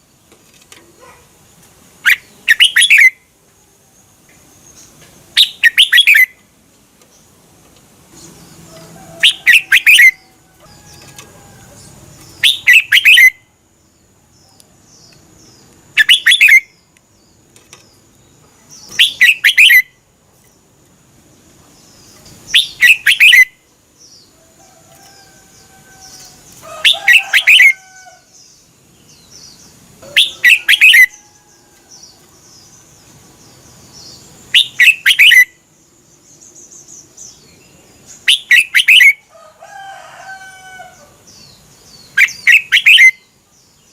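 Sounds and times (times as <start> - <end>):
bulbul singing: 2.0 - 3.3, 4.1 - 6.5, 8.1 - 13.6, 14.6 - 20.1, 21.7 - 24.4, 25.2 - 39.3, 41.2 - 43.9.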